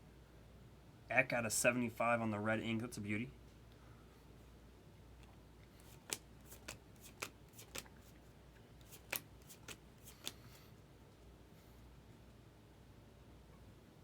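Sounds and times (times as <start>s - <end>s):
cards flicking off a pile: 5.8s - 8.1s, 8.8s - 10.4s.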